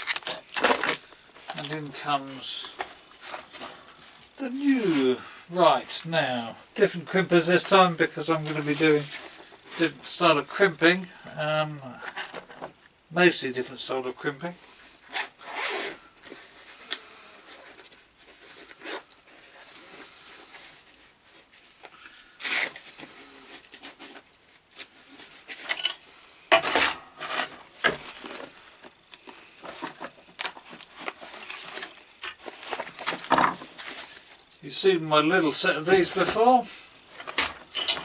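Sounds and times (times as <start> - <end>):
rustling hiss: 13.2 - 18.2
tools clicking and knocking: 37.2 - 38.0.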